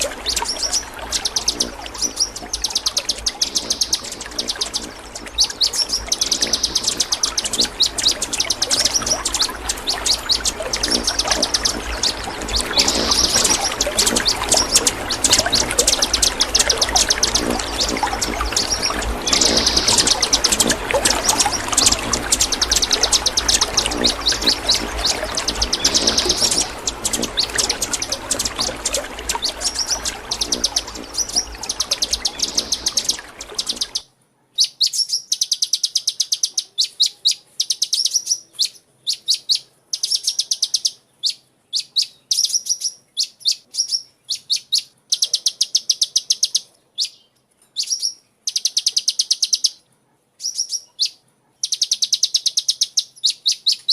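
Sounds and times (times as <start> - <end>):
bird chirping in high trills: 0.0 - 34.0
steady rushing noise: 0.0 - 34.0.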